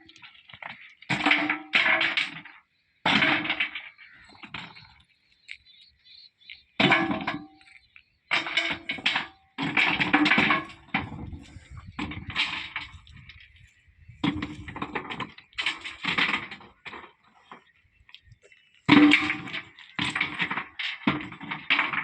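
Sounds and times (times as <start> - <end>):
stone crashing and clattering: 0.0 - 4.9, 8.3 - 13.4, 14.2 - 17.7, 18.9 - 22.0.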